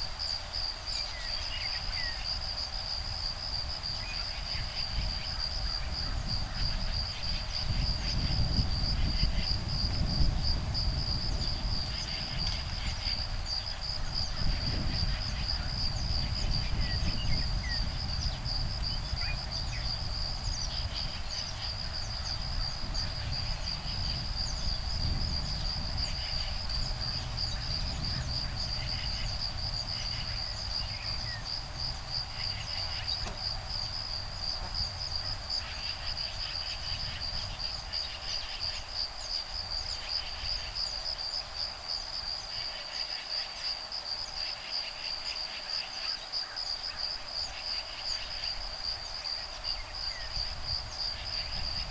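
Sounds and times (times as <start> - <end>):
insects trilling: 0.0 - 51.9
breeze rumble on microphone: 1.7 - 41.0.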